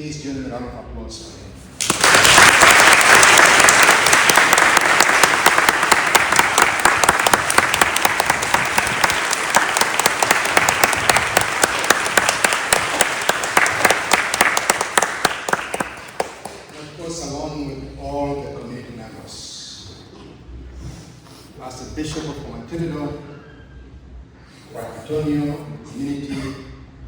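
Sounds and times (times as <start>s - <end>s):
congregation applauding: 1.8s - 16.9s.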